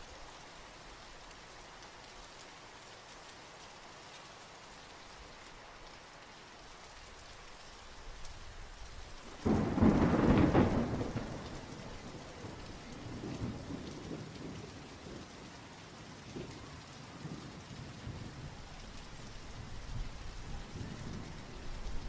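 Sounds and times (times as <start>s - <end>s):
steady rainfall: 0.0s - 22.0s
thunder rumbling: 9.4s - 15.5s, 16.3s - 22.0s.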